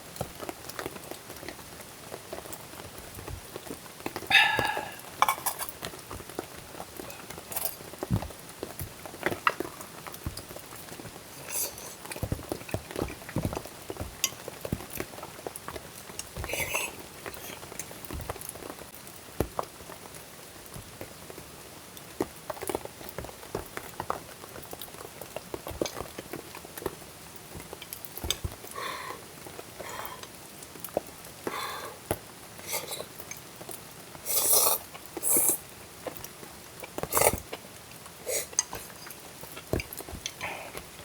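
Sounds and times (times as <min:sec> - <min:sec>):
food sizzling in a pan: 0:04.2 - 0:08.0, 0:34.2 - 0:35.8
utensils clinking and scraping: 0:04.4 - 0:05.8.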